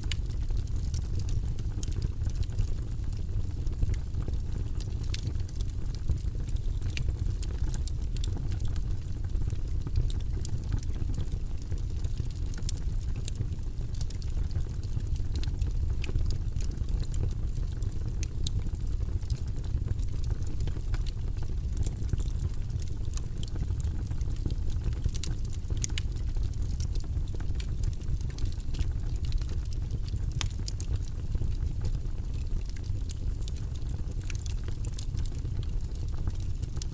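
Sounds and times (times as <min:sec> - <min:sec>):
fire crackling: 0:00.0 - 0:36.9
low rumble of flames: 0:00.0 - 0:36.9.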